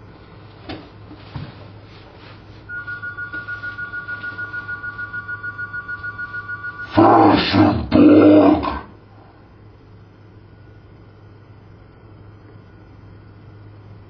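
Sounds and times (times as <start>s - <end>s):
low steady hum: 0.0s - 14.0s
warbling two-tone telephone ring: 2.7s - 7.0s.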